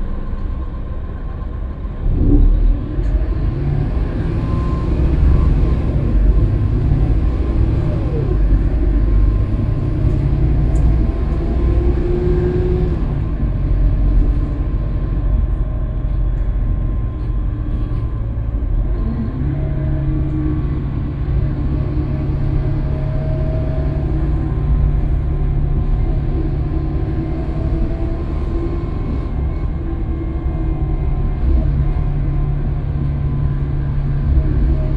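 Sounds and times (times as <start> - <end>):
city bus running: 0.0 - 34.9
whining drivetrain: 0.0 - 34.9.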